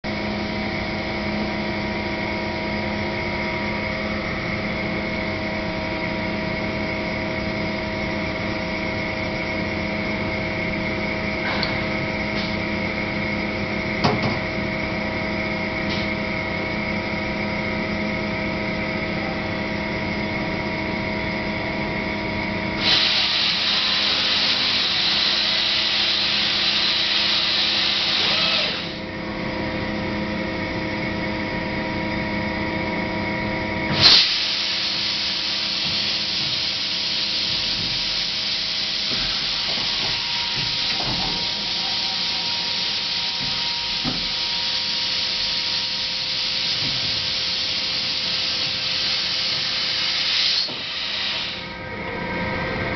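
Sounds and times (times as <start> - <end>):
machining center humming: 0.0 - 52.9
loud hiss: 22.8 - 29.0, 33.9 - 51.7.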